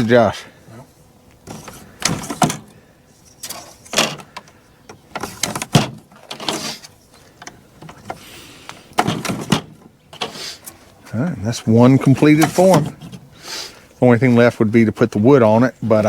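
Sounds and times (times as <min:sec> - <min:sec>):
foam and plastic parts scraping: 0:05.2 - 0:07.0, 0:11.6 - 0:13.2.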